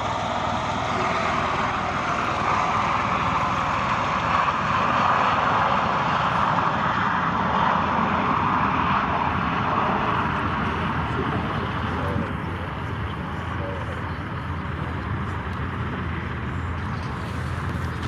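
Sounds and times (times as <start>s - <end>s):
aircraft engine noise: 0.0s - 18.0s.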